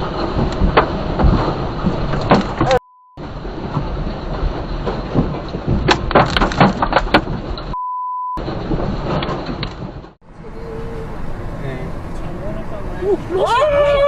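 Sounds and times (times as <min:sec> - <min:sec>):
censor bleep: 0:02.8 - 0:03.2, 0:07.7 - 0:08.4
sharp knocks: 0:04.8 - 0:07.6.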